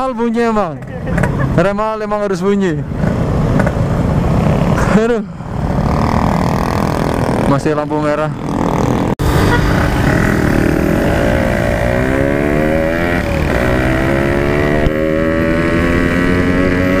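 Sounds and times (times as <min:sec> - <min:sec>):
motorcycle engine accelerating: 0:05.6 - 0:17.0.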